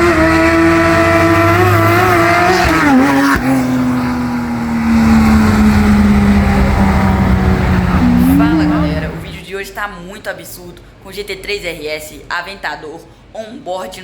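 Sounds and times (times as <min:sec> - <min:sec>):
sports car engine revving: 0:00.0 - 0:09.4.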